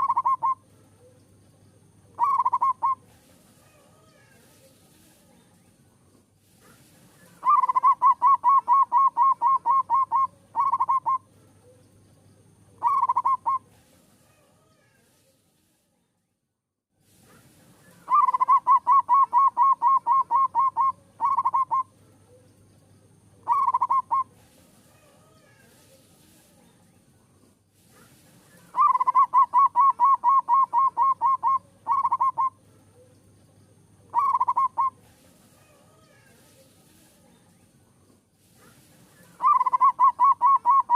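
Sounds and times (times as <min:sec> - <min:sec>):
dove cooing: 0:00.0 - 0:01.2, 0:02.1 - 0:03.1, 0:07.3 - 0:11.8, 0:12.8 - 0:13.7, 0:18.0 - 0:22.4, 0:23.4 - 0:24.4, 0:28.6 - 0:33.0, 0:34.1 - 0:36.2, 0:39.2 - 0:40.9.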